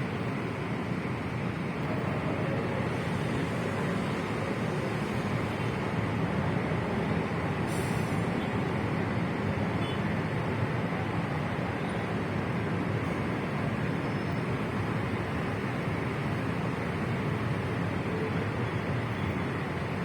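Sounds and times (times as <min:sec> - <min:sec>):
rumble of vehicles moving: 0:00.0 - 0:20.0
short hiss: 0:07.7 - 0:08.3.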